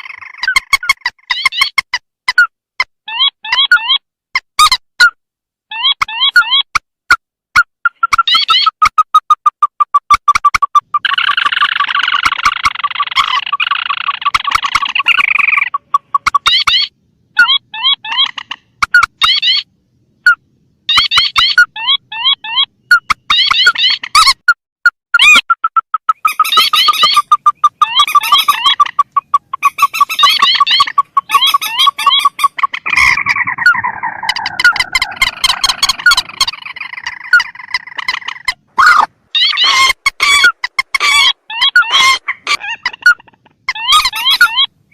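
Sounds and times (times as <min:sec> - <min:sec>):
cackling bird chatter: 0:00.0 - 0:01.9, 0:07.9 - 0:24.4, 0:25.2 - 0:44.9
bird calls from playback: 0:10.7 - 0:24.4, 0:25.2 - 0:44.9
harsh descending bird call: 0:32.8 - 0:37.4.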